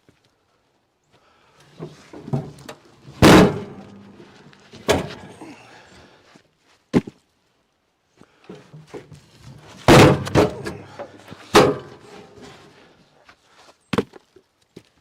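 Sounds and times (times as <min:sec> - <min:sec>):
heavy thuds and knocks: 0:02.2 - 0:05.4, 0:09.6 - 0:12.4.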